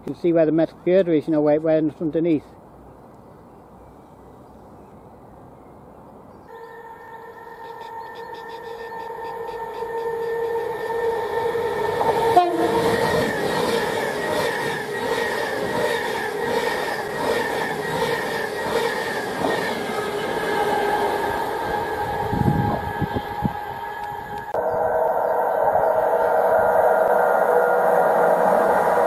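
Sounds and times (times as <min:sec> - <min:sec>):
train wheels rumbling on rails: 0:06.5 - 0:29.0.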